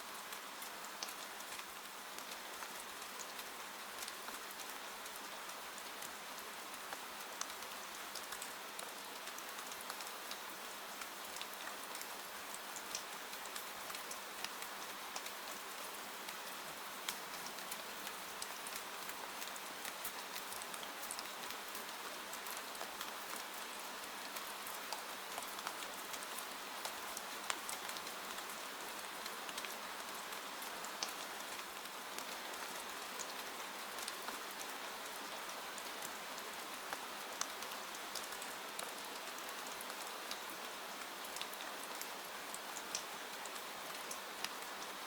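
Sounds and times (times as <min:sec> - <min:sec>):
steady rain hiss: 0:00.0 - 0:45.0.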